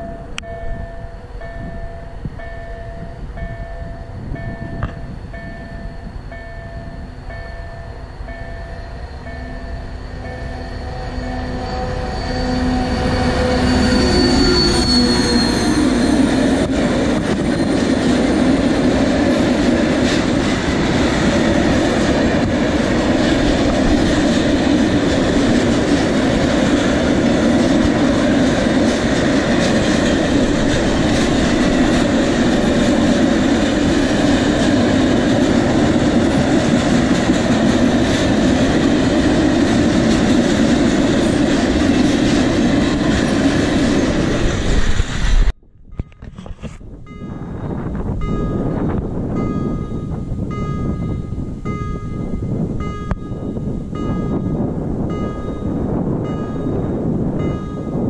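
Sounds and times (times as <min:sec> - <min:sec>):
diesel locomotive engine: 0:00.0 - 0:58.0
wheel squeal: 0:08.5 - 0:16.7
train wheels clattering on rails: 0:14.0 - 0:46.6.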